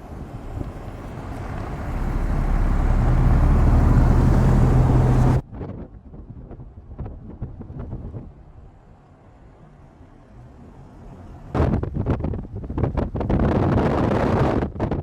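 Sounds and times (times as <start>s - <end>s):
vehicle passing on snowy road: 0.0s - 5.4s.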